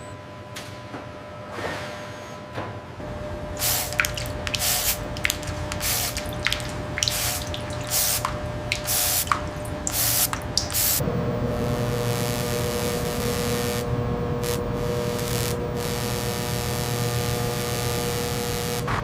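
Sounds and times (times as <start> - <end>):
faint steady hum: 3.0 - 19.0
dripping plinks: 3.6 - 11.0
hissing spray bursts: 3.6 - 11.1.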